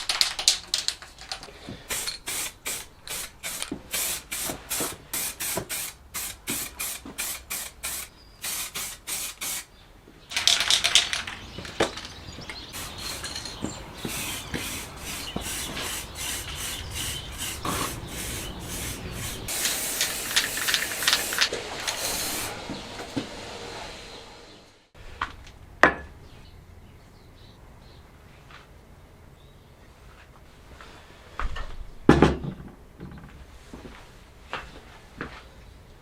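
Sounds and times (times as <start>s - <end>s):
hand scrubbing strokes: 12.7s - 24.1s.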